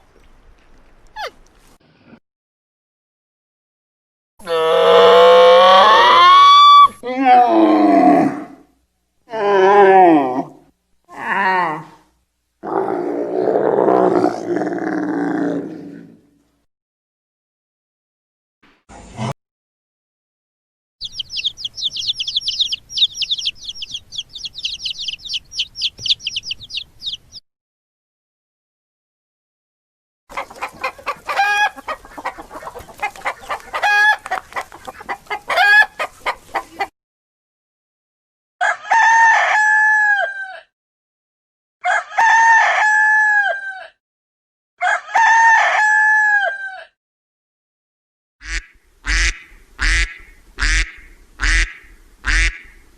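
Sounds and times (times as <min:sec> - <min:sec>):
small birds chirping: 0:21.0 - 0:27.4
rooster crowing: 0:38.6 - 0:40.7, 0:41.8 - 0:44.0, 0:44.8 - 0:47.0.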